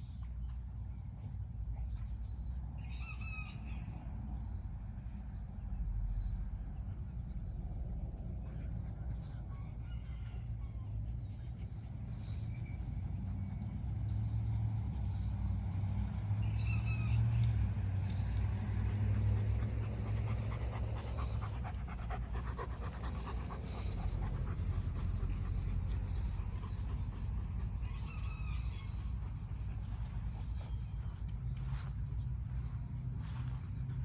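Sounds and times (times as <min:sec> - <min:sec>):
low rumble: 0:10.9 - 0:34.0
dog panting: 0:18.4 - 0:34.0.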